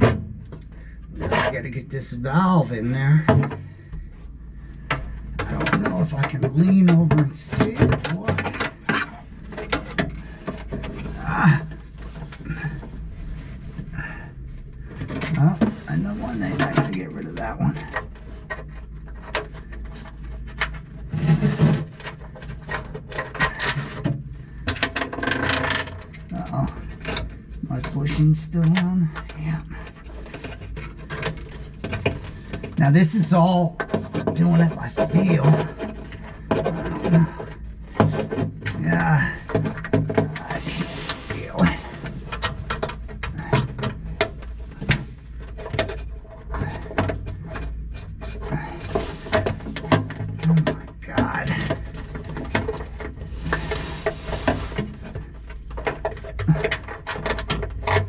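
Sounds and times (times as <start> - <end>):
low steady hum: 0.0 - 58.0
scraping rub: 0.0 - 58.0
metal parts clicking and knocking: 4.8 - 12.9, 14.9 - 32.8, 33.7 - 58.0
metal parts clicking and tapping: 28.6 - 32.8.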